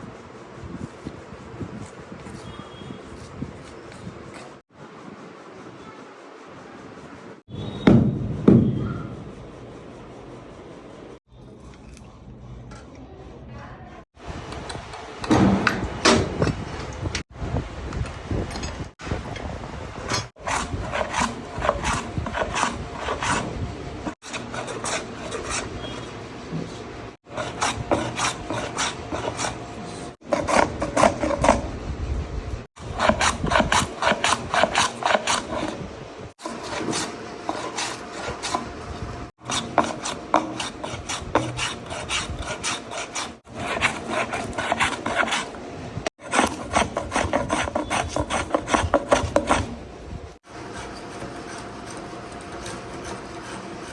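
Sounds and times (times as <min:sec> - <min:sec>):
hand file rasping wood: 0:20.1 - 0:23.5, 0:24.1 - 0:26.1, 0:27.2 - 0:31.6, 0:32.8 - 0:35.8, 0:36.4 - 0:49.8, 0:50.5 - 0:53.9.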